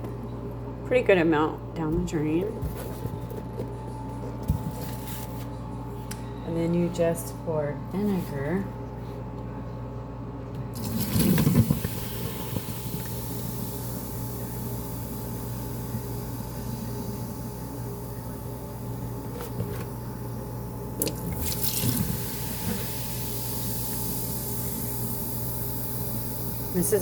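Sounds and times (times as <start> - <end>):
vinegar splashing into a drain: 10.8 - 13.2, 21.0 - 24.9
fizzing in a drain: 10.8 - 18.0, 21.0 - 26.8.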